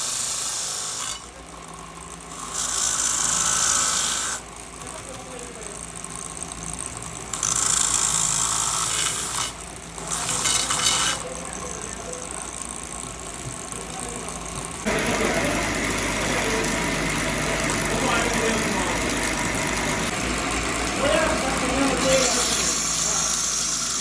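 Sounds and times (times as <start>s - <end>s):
engine running: 11.8s - 22.4s.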